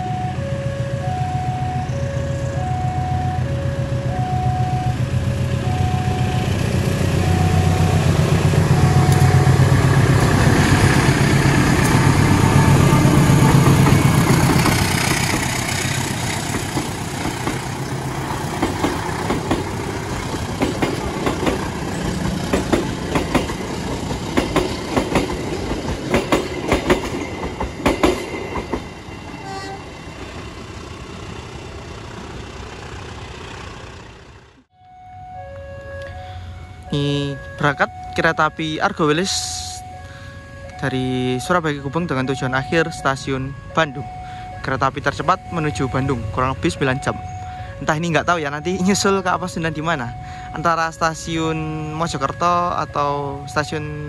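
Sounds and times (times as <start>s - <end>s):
diesel locomotive engine drone: 0.0s - 54.0s
train wheels click-clacking: 16.4s - 17.8s, 18.5s - 28.9s.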